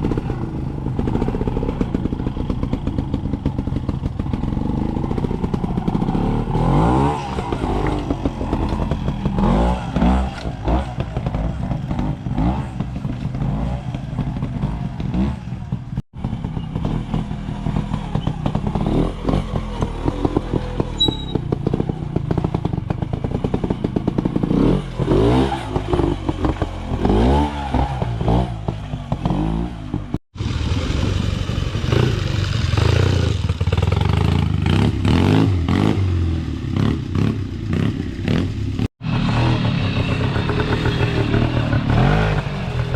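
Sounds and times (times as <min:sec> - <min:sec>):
motorcycle engines revving: 0:00.0 - 0:42.9.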